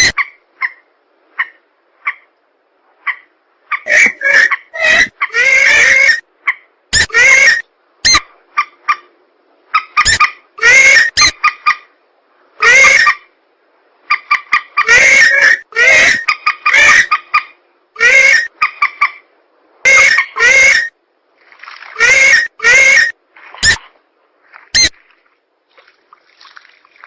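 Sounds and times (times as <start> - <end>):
swamp birds harsh calls: 3.1 - 6.2, 9.8 - 11.8, 14.1 - 17.2, 19.9 - 20.9.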